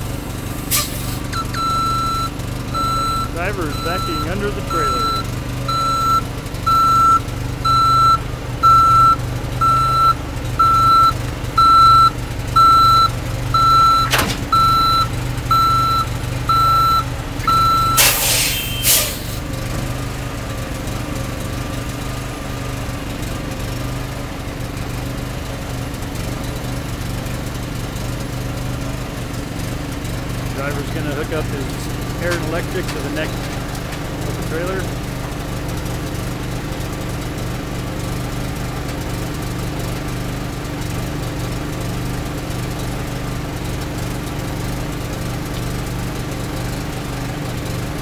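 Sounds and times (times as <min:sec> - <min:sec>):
truck engine running: 0:00.0 - 0:48.0
truck reverse alarm beeping: 0:00.2 - 0:19.4, 0:30.4 - 0:35.2.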